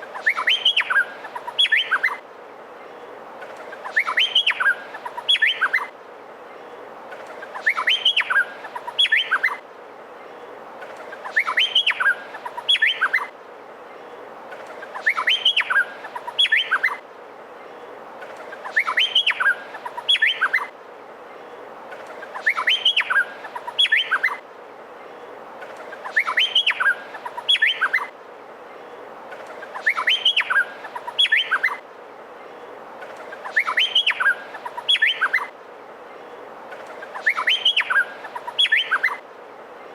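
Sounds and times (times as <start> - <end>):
faint constant hiss: 0.0 - 39.9
honeyeater whistled song: 37.2 - 39.2.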